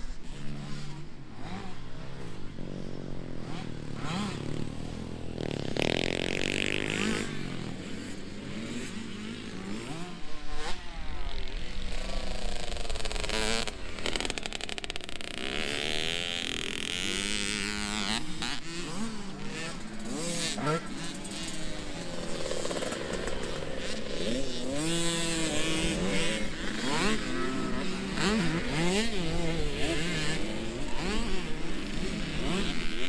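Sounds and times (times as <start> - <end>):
dirt bike engines revving: 0.0 - 33.0.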